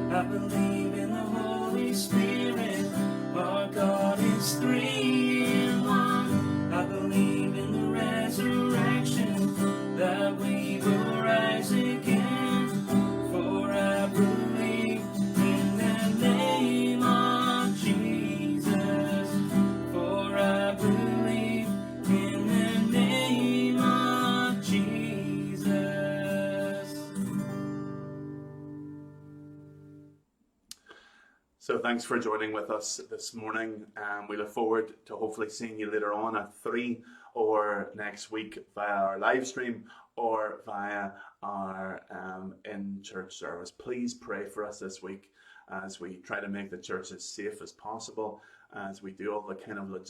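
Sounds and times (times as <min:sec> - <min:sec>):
worship song with acoustic guitar: 0:00.0 - 0:30.0.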